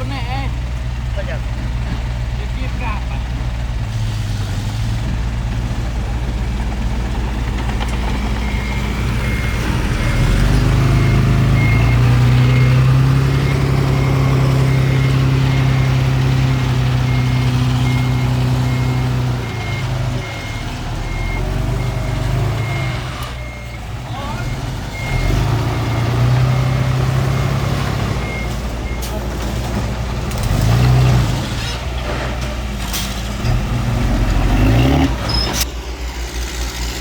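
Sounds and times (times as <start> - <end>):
heavy diesel machinery revving: 0.0 - 37.0
reversing alarm beeps: 8.3 - 16.2, 17.0 - 29.1.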